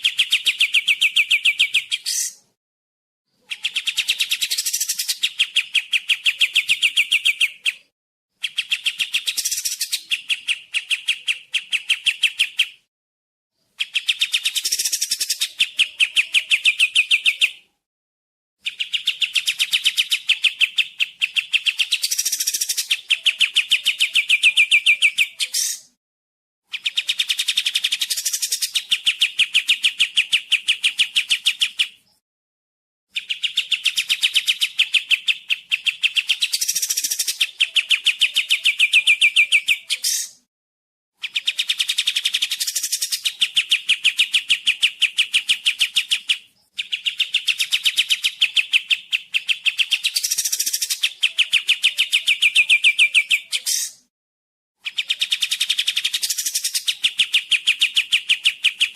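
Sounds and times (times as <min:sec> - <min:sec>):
songbird trilling: 0:00.1 - 0:02.4, 0:03.4 - 0:12.6, 0:33.2 - 0:40.4, 0:41.3 - 0:54.0.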